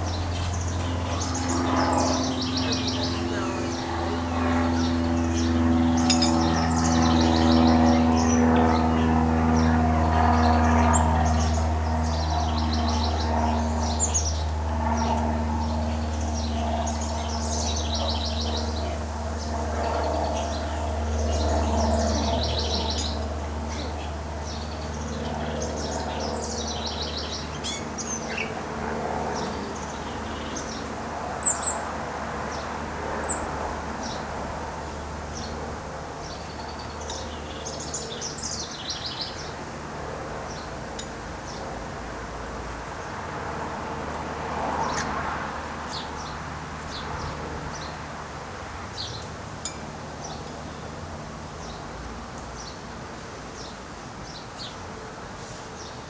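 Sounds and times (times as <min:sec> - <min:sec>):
small birds chirping: 0:00.0 - 0:31.8, 0:35.3 - 0:39.6.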